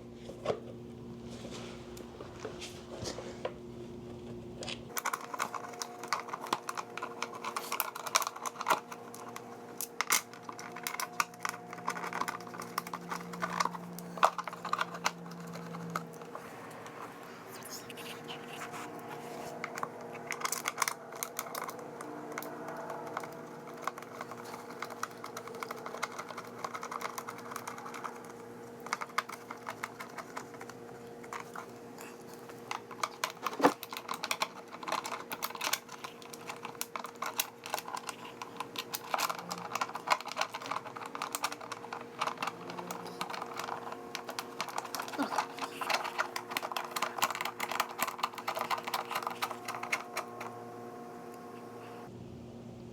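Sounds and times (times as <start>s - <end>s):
steady low hum: 0.0s - 52.9s
small parts clicking and rattling: 4.9s - 17.0s, 18.3s - 50.6s.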